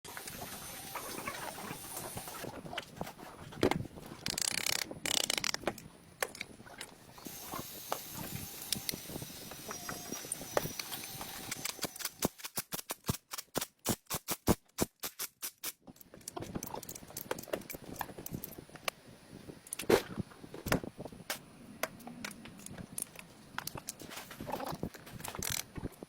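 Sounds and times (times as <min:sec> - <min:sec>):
rapid sharp clicks of tool: 0:11.5 - 0:15.8.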